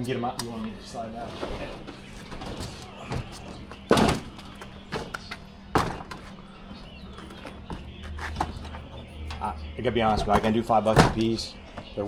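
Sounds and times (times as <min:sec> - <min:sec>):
plastic bin thudding: 0:03.2 - 0:06.2, 0:10.0 - 0:11.4.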